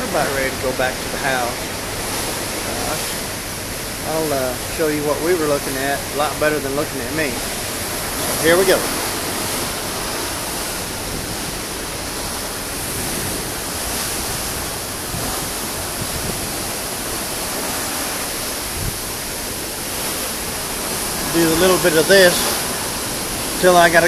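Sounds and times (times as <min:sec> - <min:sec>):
sea water rushing past ship: 0:00.0 - 0:24.0
wind rushing: 0:07.2 - 0:24.0.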